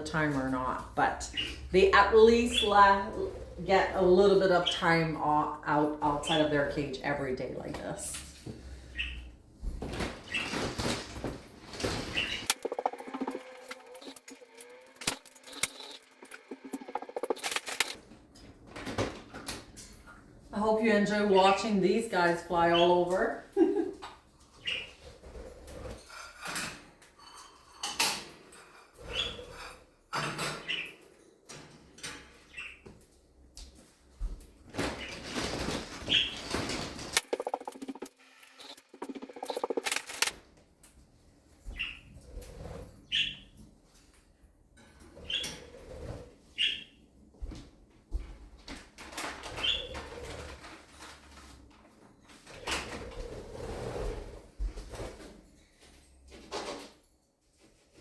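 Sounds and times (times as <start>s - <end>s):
budgies chirping: 1.2s - 1.7s
wings fluttering: 9.9s - 18.0s, 34.7s - 40.3s.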